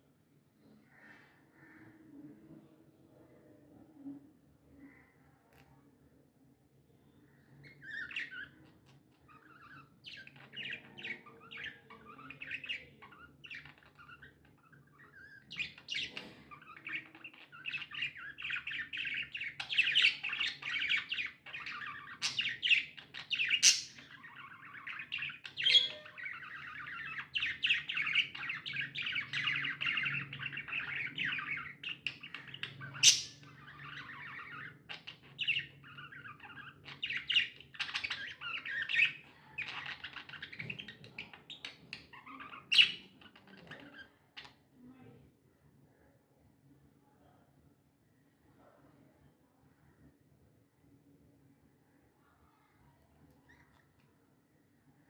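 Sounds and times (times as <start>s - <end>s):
budgerigars chirping and chattering: 7.6s - 44.5s
sharp budgerigar squawks: 32.3s - 33.6s.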